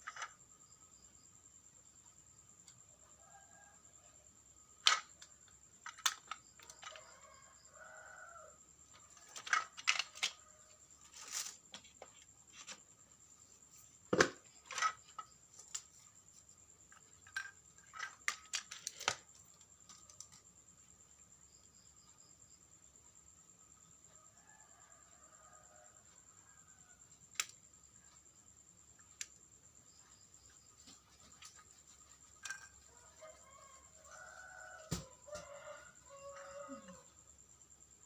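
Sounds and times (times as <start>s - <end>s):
small parts clicking and scraping: 0.0s - 0.4s, 4.8s - 7.2s, 8.9s - 13.0s, 14.4s - 20.6s, 31.2s - 33.4s.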